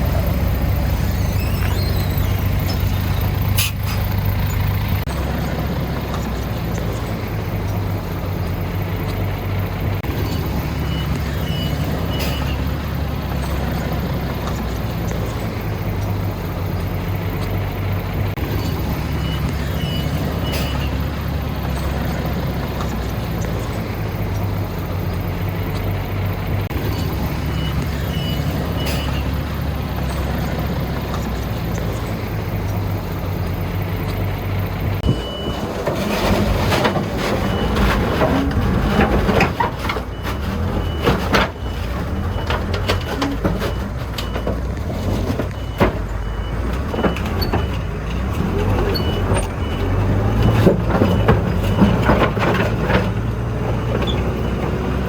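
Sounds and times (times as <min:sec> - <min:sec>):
diesel earthmoving machine running: 0:00.0 - 0:55.0
reversing alarm beeps: 0:10.8 - 0:12.7, 0:18.6 - 0:21.0, 0:26.9 - 0:29.4, 0:35.0 - 0:35.7, 0:45.5 - 0:48.0, 0:48.9 - 0:52.1
machine rattling and clanking: 0:33.6 - 0:49.7.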